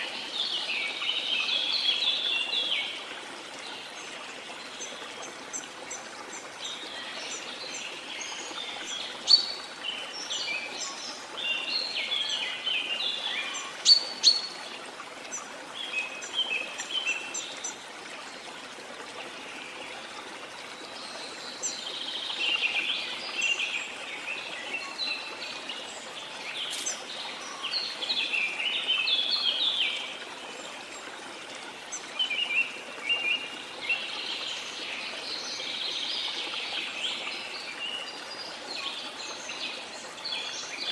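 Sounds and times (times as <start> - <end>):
birds chirping and trilling: 4.7 - 14.6, 21.0 - 30.1
waterfall hiss: 21.6 - 40.9.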